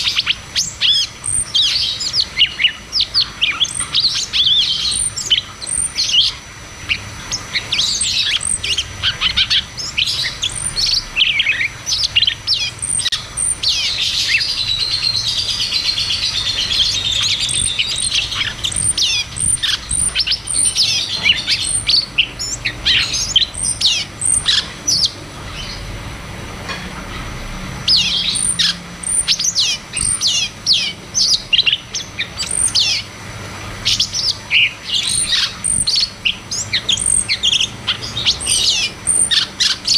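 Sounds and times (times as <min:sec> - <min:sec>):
songbird singing rapid chirps: 0:00.0 - 0:39.9
very high bird notes: 0:07.6 - 0:25.9, 0:27.8 - 0:33.1.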